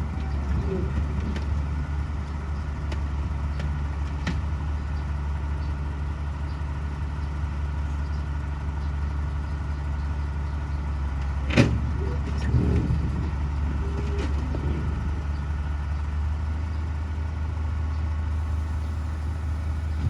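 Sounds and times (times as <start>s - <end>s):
diesel engine idling: 11.8s - 20.0s.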